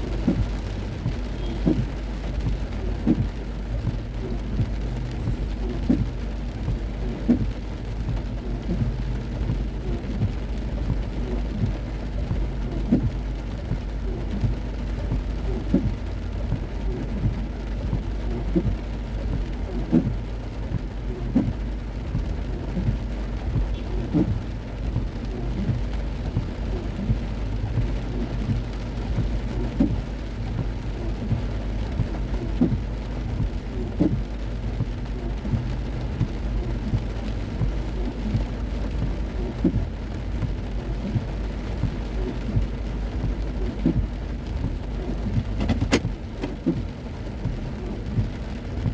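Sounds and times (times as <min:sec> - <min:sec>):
car rumbling on road: 0:00.0 - 0:48.9
heavy rain drumming on car: 0:00.0 - 0:48.9.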